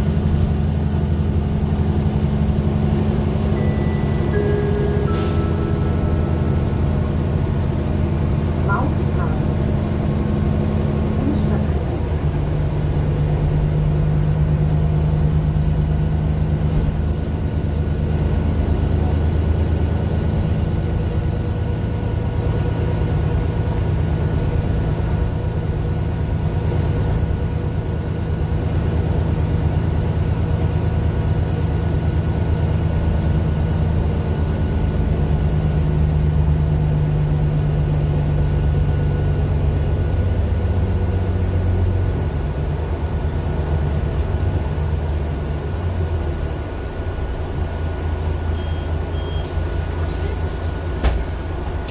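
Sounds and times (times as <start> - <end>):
bus diesel engine droning: 0.0 - 51.9.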